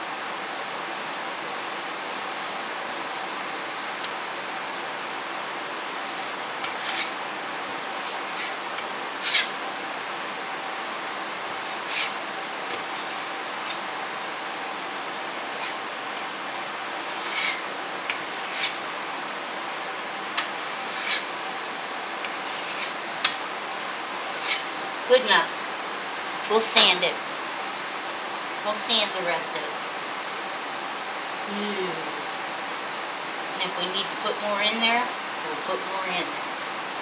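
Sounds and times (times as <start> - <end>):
steady background hiss: 0.0 - 37.0
putty knife scraping wood: 6.1 - 7.2, 9.2 - 9.6, 15.1 - 18.8, 20.4 - 21.3, 22.2 - 24.7.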